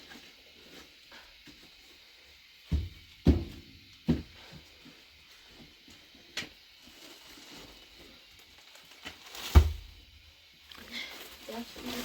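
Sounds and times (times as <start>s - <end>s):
dull thumps: 2.7s - 4.4s.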